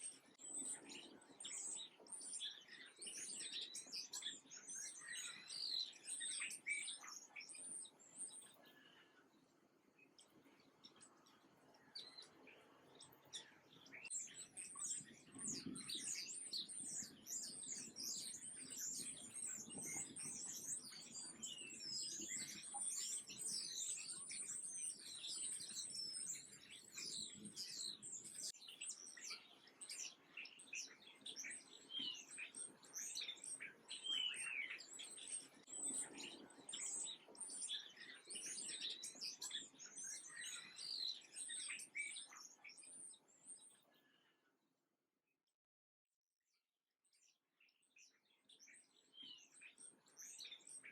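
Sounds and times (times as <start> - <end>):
small birds chirping: 0.0 - 44.5, 47.0 - 50.9.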